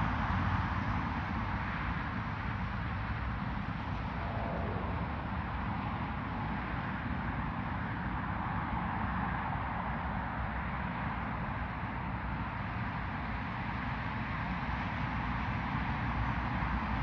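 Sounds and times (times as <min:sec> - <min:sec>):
jet engines rumbling: 0:03.0 - 0:07.4.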